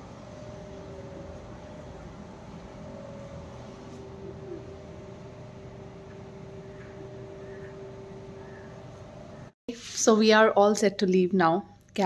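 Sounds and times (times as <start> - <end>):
machine humming: 0.0 - 9.6.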